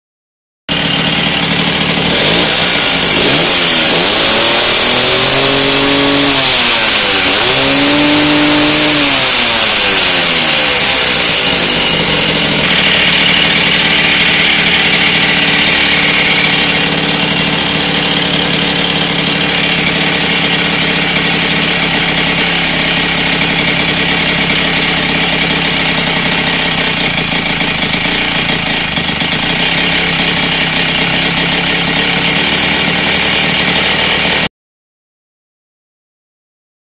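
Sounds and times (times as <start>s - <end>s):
moped engine idling: 0.7s - 4.0s, 10.2s - 34.5s.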